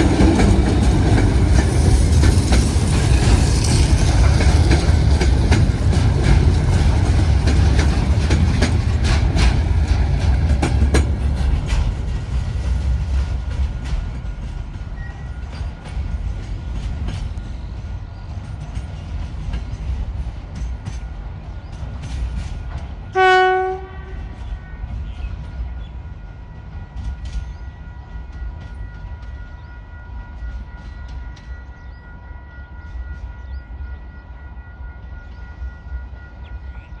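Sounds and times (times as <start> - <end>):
locomotive engine rumble: 0.0 - 26.1
locomotive horn blast: 23.1 - 24.4.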